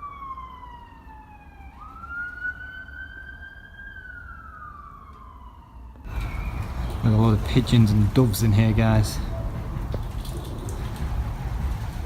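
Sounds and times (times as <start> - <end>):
emergency vehicle siren wailing: 0.0 - 12.0
low rumble: 6.1 - 12.0.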